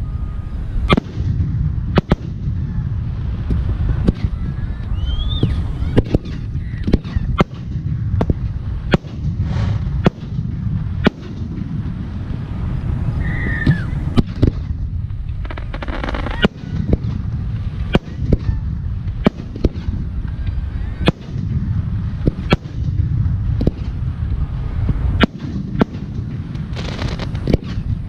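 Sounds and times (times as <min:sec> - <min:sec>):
falling firework whistle: 0:00.0 - 0:01.4, 0:03.9 - 0:07.6, 0:13.1 - 0:14.8, 0:15.4 - 0:17.2
firework crackling: 0:00.0 - 0:28.0
low rumble: 0:00.0 - 0:28.0
firework bangs: 0:00.7 - 0:28.0.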